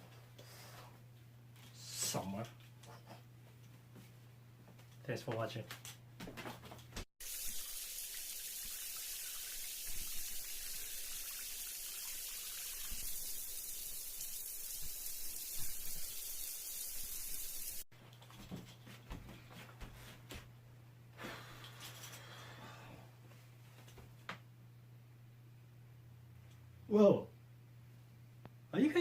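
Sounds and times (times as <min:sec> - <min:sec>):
tap water running: 0:07.2 - 0:17.8.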